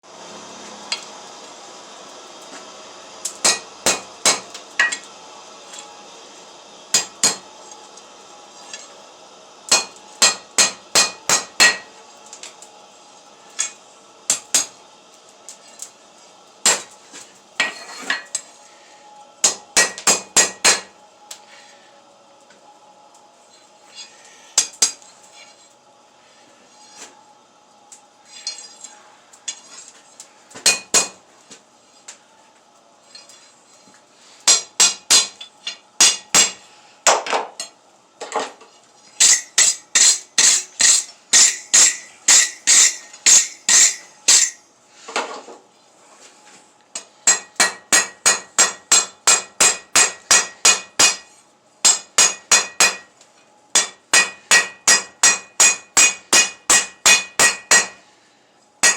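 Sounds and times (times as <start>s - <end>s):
hammer striking steel on anvil: 3.3s - 5.1s, 6.9s - 7.5s, 9.7s - 11.9s, 13.6s - 14.7s, 16.6s - 17.0s, 19.4s - 20.9s, 24.6s - 25.0s, 30.6s - 31.2s, 34.4s - 37.7s, 39.2s - 44.6s, 47.0s - 53.1s, 53.7s - 58.0s.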